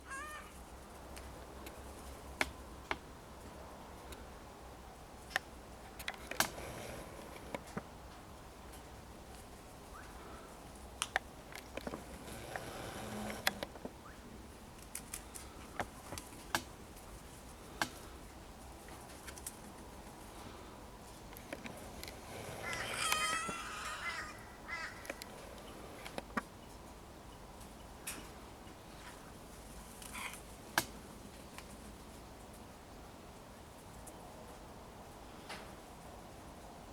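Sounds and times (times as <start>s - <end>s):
bird harsh call: 22.5s - 25.3s.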